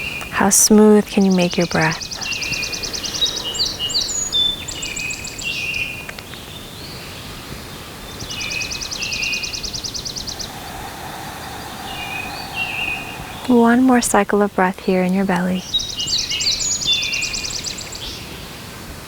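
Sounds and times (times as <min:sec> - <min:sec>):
songbirds singing: 0:00.0 - 0:18.3
bird chirps: 0:01.2 - 0:06.5
bird high rapid trill: 0:01.4 - 0:05.7.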